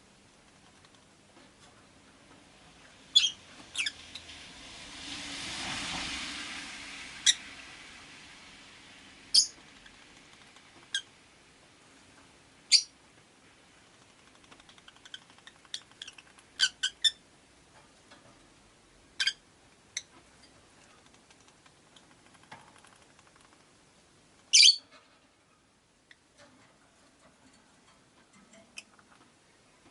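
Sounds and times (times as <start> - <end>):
lovebirds chirping: 3.1 - 4.3, 9.3 - 9.6, 12.7 - 12.9, 24.5 - 24.9.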